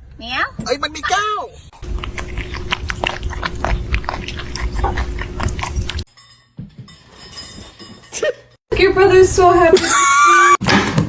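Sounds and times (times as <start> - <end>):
cat chewing with crunching clicks: 1.8 - 6.0.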